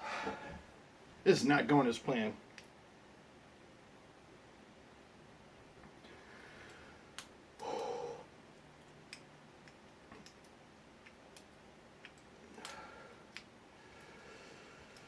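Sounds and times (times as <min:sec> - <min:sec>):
soft breath: 0:00.0 - 0:00.7, 0:06.0 - 0:08.3, 0:12.5 - 0:15.0.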